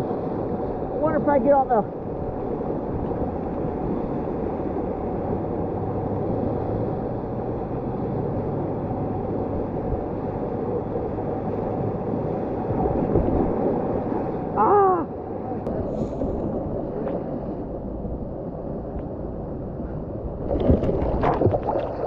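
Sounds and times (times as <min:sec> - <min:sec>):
whitewater rushing in river rapid: 0:00.8 - 0:02.0.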